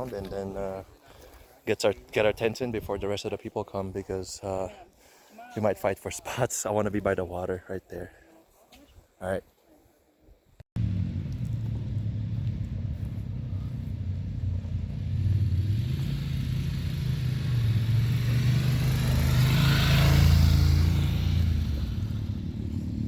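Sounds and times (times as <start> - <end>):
motorcycle engine rumbling: 10.8 - 23.0.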